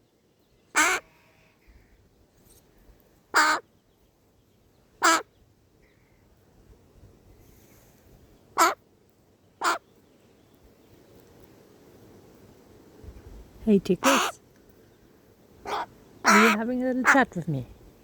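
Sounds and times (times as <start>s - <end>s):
crow cawing: 0.8s - 1.0s, 3.4s - 3.6s, 5.0s - 5.3s, 8.6s - 8.8s, 9.6s - 9.8s, 14.0s - 14.4s, 15.6s - 17.2s.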